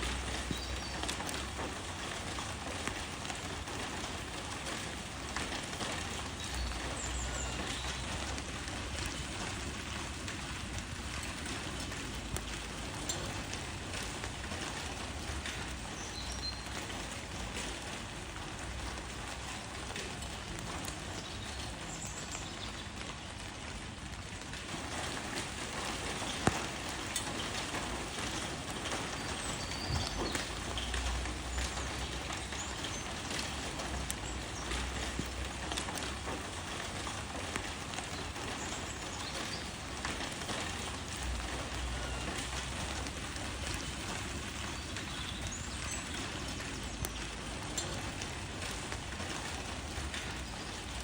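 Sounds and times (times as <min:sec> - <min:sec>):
rain falling on leaves: 0:00.0 - 0:51.0.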